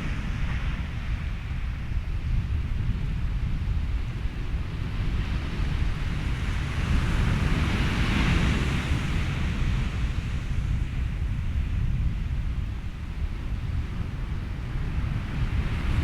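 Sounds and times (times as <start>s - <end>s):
ocean surf: 0.0s - 2.2s, 4.8s - 12.4s
wind: 0.0s - 16.0s.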